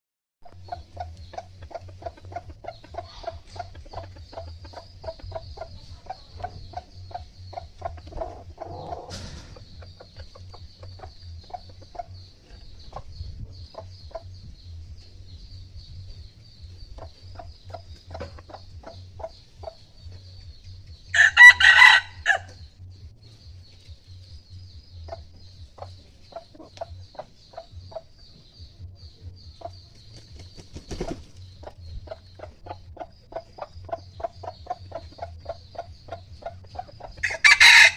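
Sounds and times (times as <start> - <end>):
chickens clucking: 0.5 - 37.9
rooster crow: 21.1 - 22.6, 37.2 - 37.9.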